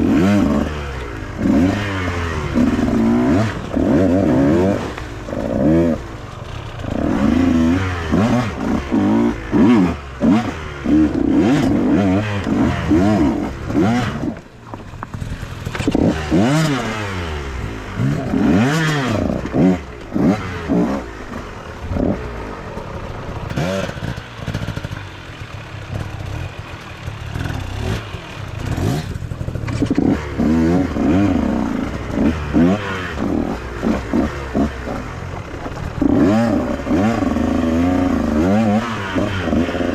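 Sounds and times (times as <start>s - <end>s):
dirt bike engine revving: 0.0s - 39.9s
bike clattering over rough ground: 13.4s - 16.8s.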